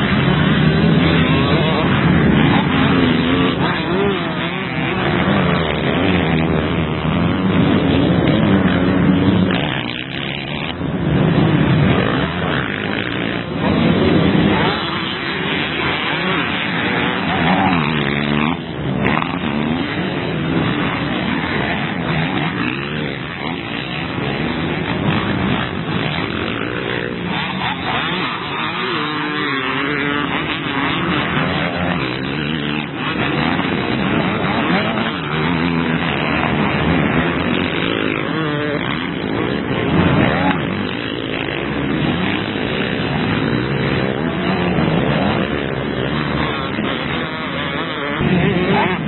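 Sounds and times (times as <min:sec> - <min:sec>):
motocross bikes revving past: 0:00.0 - 0:49.0.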